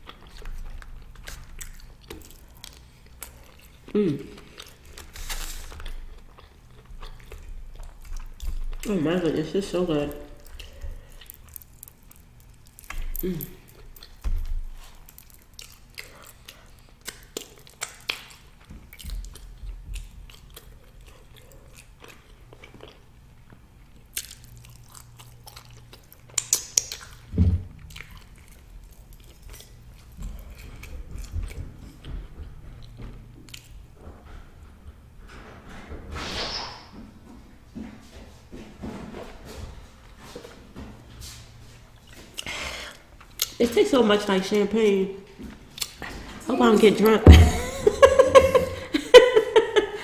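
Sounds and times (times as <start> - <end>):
person chewing food: 0.0 - 33.8, 45.5 - 46.2.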